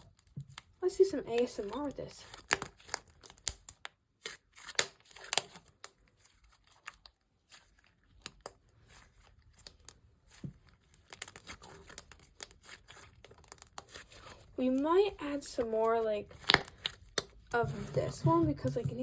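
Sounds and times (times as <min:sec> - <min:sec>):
slime squishing and crackling: 0:00.0 - 0:19.0.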